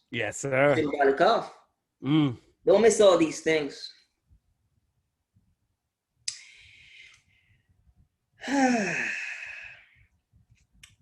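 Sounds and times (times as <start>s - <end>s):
person sighing: 8.4s - 10.0s.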